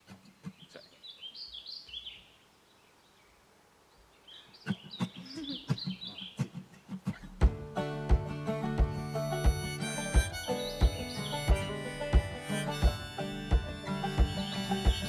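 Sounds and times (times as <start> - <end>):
songbird warbling: 4.0 - 6.5, 10.6 - 12.0.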